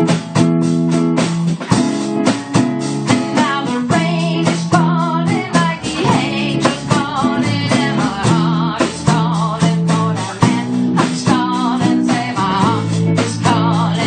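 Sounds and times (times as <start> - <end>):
electric guitar lead with vibrato: 0.0 - 9.2
live blues-rock band: 0.0 - 14.0.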